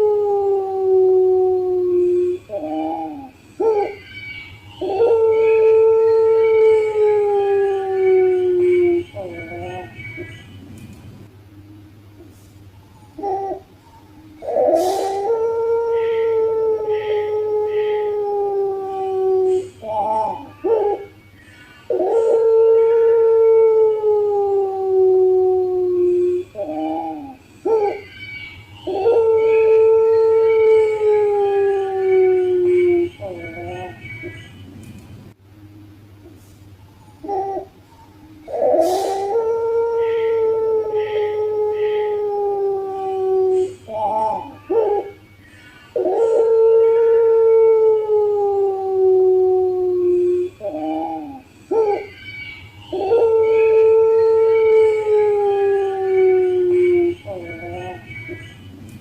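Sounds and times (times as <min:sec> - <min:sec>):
dove cooing: 0:13.0 - 0:15.4, 0:37.1 - 0:39.4.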